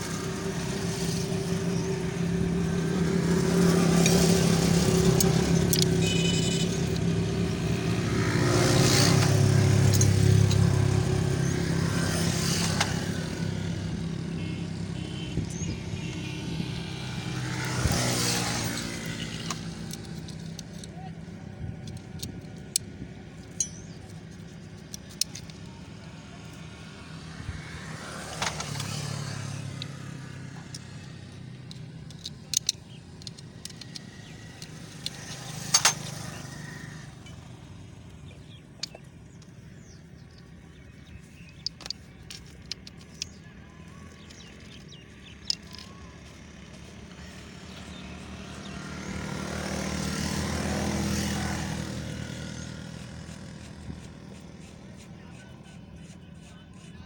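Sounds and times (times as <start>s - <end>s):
road vehicles passing: 0.0s - 57.0s
metallic clicks of hand tools: 2.8s - 13.2s, 17.6s - 21.0s, 21.8s - 25.7s, 28.3s - 36.7s, 38.7s - 39.6s, 41.4s - 47.9s.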